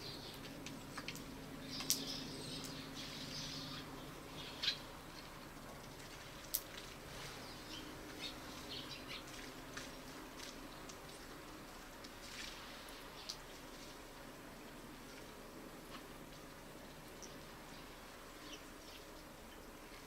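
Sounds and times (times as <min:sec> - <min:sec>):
small birds chirping: 0:00.0 - 0:05.4, 0:07.2 - 0:09.9, 0:17.1 - 0:20.0.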